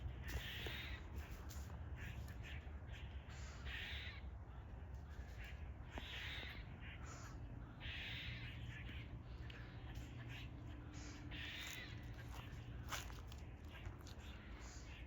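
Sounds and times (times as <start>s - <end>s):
squirrels barking: 0.0s - 15.0s.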